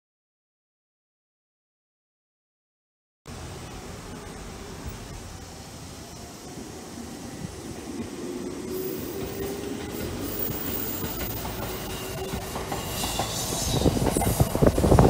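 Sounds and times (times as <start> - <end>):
high hiss: 3.3 - 15.0
train humming tone: 3.3 - 15.0
train wheels rumbling on rails: 3.4 - 15.0.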